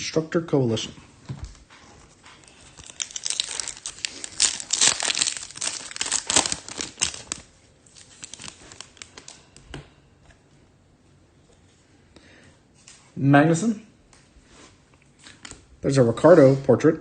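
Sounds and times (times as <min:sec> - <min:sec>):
foil wrapper tearing and crinkling: 0:02.4 - 0:09.4
cards clicking and rustling: 0:02.7 - 0:07.4.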